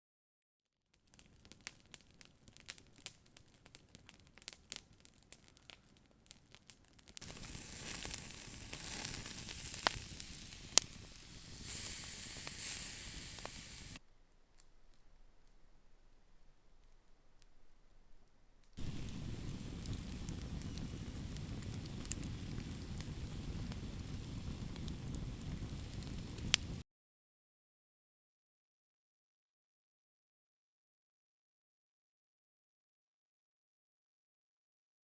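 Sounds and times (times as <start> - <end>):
campfire crackling: 1.0 - 26.8
fire hissing: 1.2 - 14.0, 18.8 - 26.8.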